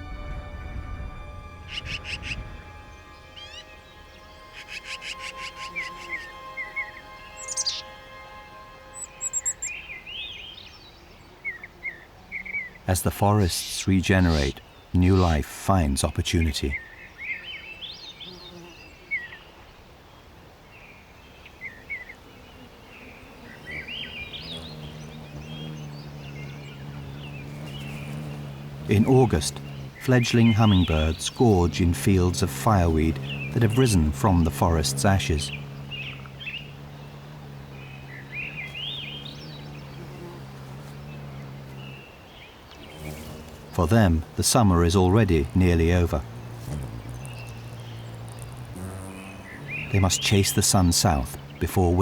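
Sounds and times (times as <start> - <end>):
low steady hum: 0.0 - 10.5, 24.2 - 42.1
small birds chirping: 1.6 - 52.0.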